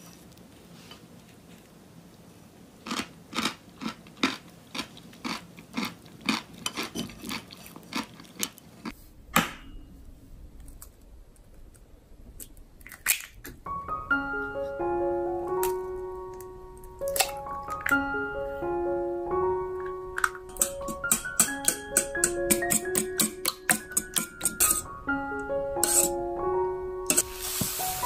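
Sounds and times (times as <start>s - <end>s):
crunchy chewing: 2.8s - 9.0s.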